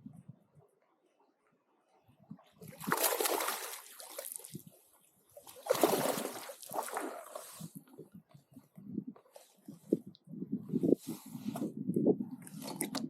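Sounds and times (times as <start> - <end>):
water splashing: 2.6 - 4.7, 5.4 - 8.0.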